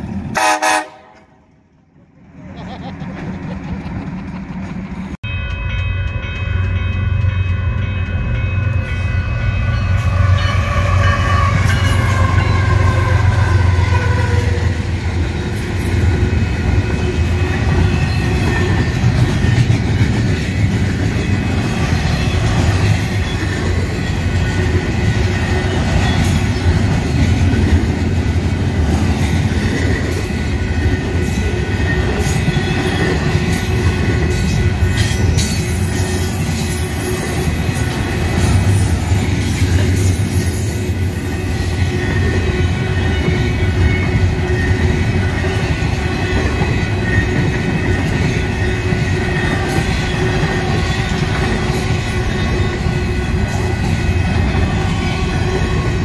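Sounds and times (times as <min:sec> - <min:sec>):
train cars rolling on rails: 0:00.0 - 0:56.0
locomotive rumble: 0:01.4 - 0:08.8.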